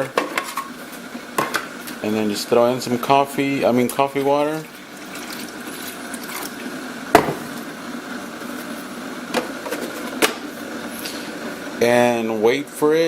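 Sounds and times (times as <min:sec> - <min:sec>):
coffee maker knocks: 0:07.2 - 0:07.6.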